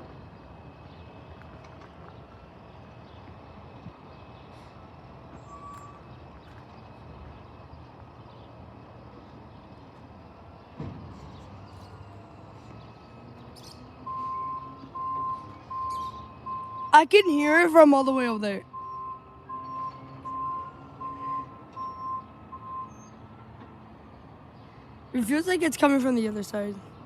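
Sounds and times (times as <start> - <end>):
reversing alarm beeping: 5.4 - 6.0, 14.0 - 17.8, 18.6 - 23.2.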